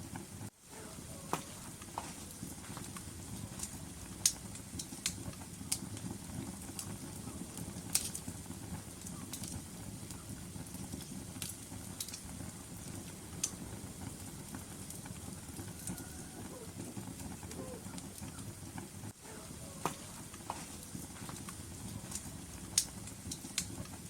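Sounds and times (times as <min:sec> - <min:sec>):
fire crackling and popping: 0:00.0 - 0:24.0
low rumble of flames: 0:00.0 - 0:24.0.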